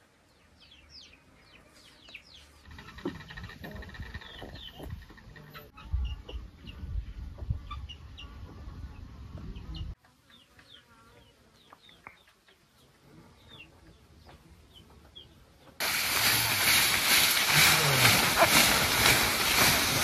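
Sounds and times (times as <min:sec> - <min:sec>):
birds chirping: 0:00.2 - 0:20.0
low rumbling noise: 0:15.8 - 0:20.0.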